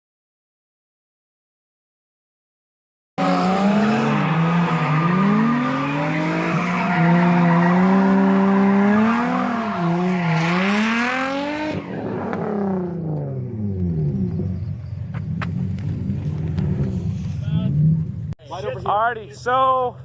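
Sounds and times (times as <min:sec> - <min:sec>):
tyre squeal: 0:03.2 - 0:10.8
car engine revving: 0:03.2 - 0:18.3.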